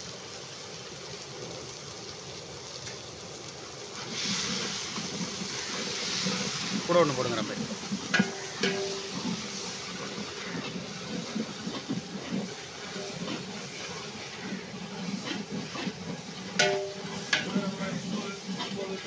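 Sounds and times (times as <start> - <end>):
onions sizzling in oil: 0.0 - 19.0
ladle stirring and scraping: 4.0 - 19.0
ladle clinking on pot: 8.1 - 9.4, 15.3 - 18.8.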